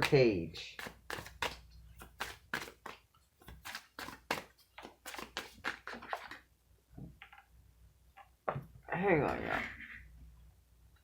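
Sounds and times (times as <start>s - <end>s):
cards being shuffled: 0.0s - 6.5s.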